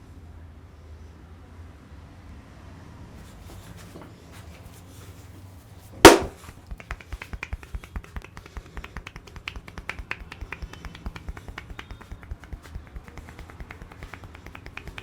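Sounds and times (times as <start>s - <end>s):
loud sharp knock: 6.1s - 6.4s
rapid irregular clicking: 6.1s - 15.0s.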